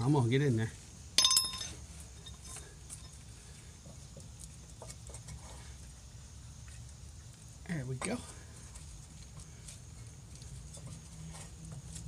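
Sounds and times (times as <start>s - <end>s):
sharp metallic clink: 1.2s - 2.5s.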